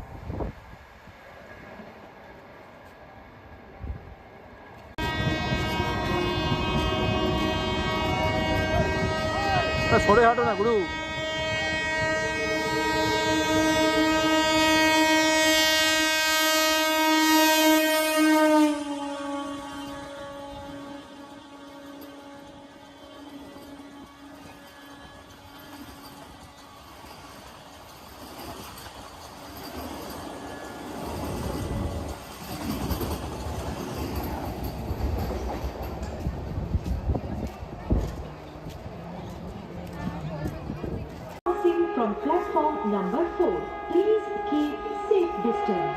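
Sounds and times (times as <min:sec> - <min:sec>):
train rumbling: 0:00.0 - 0:45.9
train horn long blast: 0:05.0 - 0:27.3, 0:41.4 - 0:45.9.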